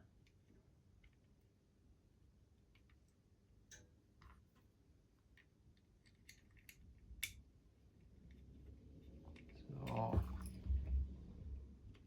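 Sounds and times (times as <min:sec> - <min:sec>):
small parts clicking and tapping: 0:05.2 - 0:07.5.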